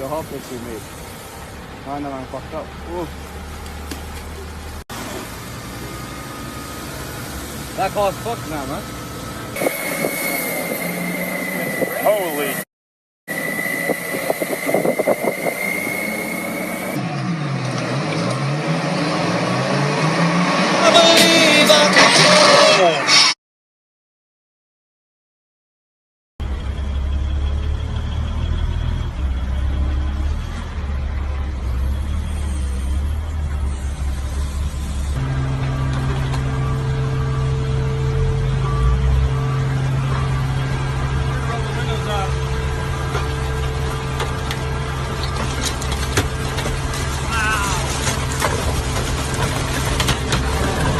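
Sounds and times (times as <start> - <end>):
steady high-pitched tone: 9.2 - 12.6, 13.3 - 17.0
car engine running: 26.4 - 50.9
knocks and rattles: 43.0 - 50.9.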